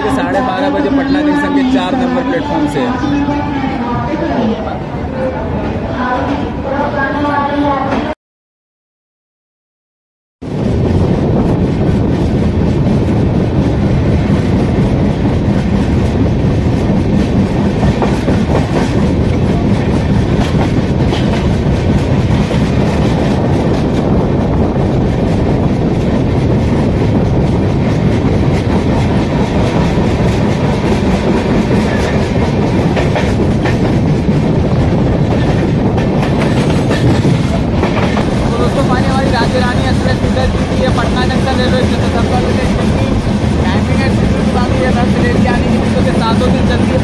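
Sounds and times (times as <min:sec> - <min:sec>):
train wheels rumbling on rails: 0:10.4 - 0:47.0.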